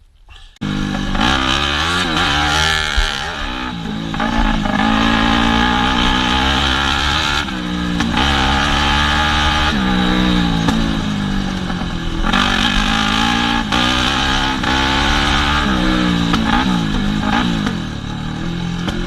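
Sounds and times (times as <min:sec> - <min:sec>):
motorcycle engine revving: 0:00.6 - 0:19.0.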